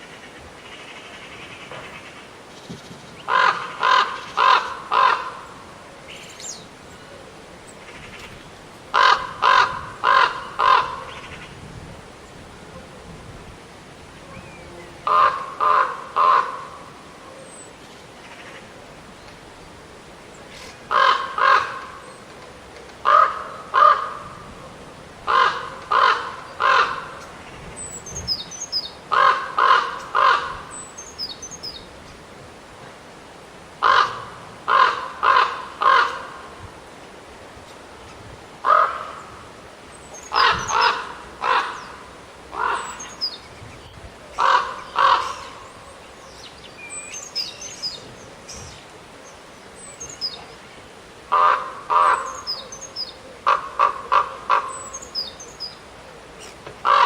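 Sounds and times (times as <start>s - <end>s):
crow cawing: 3.3s - 5.4s, 8.9s - 11.5s, 15.1s - 16.8s, 20.9s - 21.9s, 23.0s - 24.3s, 25.3s - 27.1s, 29.1s - 30.7s, 33.8s - 36.4s, 38.6s - 39.3s, 40.4s - 43.1s, 44.4s - 45.6s, 51.3s - 52.4s, 53.4s - 54.9s.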